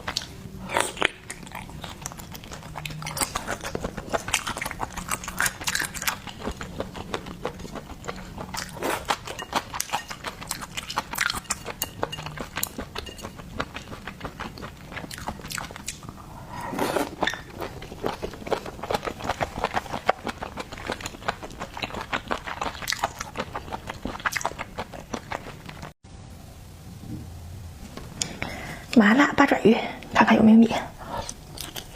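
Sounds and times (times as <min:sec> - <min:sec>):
biting and chewing: 0:00.0 - 0:16.2, 0:17.0 - 0:26.0.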